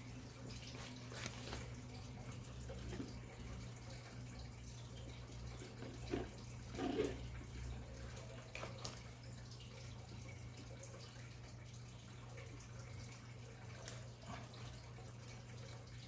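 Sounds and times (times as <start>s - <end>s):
foam and tape handling rustles: 0.7s - 1.8s.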